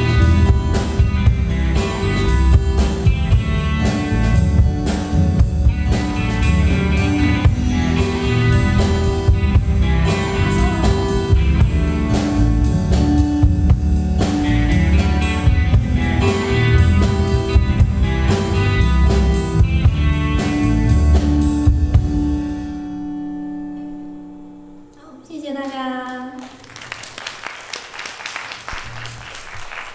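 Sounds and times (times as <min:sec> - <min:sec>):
drum kit steady beat: 0:00.0 - 0:22.5
bass guitar chords: 0:00.0 - 0:24.9
guitar chords: 0:00.0 - 0:26.0.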